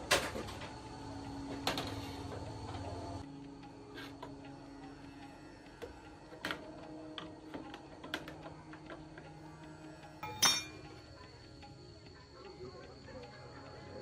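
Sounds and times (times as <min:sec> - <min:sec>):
quiet background music: 0:00.0 - 0:14.0
metal tools clinking: 0:10.2 - 0:10.9.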